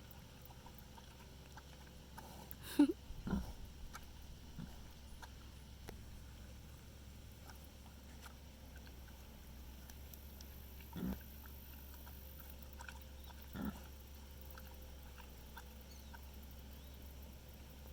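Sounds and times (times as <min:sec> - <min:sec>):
steady low hum: 0:00.0 - 0:17.9
animal grunts: 0:02.1 - 0:04.9, 0:10.8 - 0:11.3, 0:12.8 - 0:14.0.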